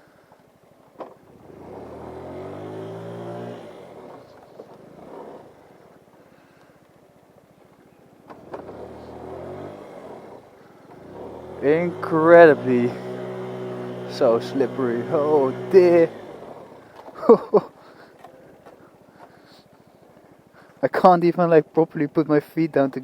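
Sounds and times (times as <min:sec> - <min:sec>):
scooter engine revving: 0:01.2 - 0:06.1, 0:08.3 - 0:18.8.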